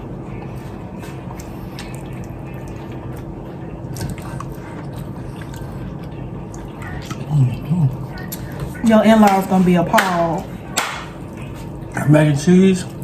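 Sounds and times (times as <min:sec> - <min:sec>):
steady low hum: 0:00.0 - 0:13.0
person chewing: 0:00.3 - 0:08.8.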